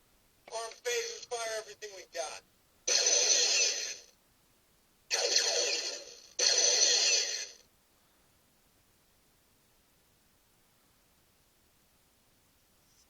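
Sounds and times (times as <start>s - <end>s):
electronic toy noise blasts: 2.9s - 4.1s, 5.1s - 7.6s.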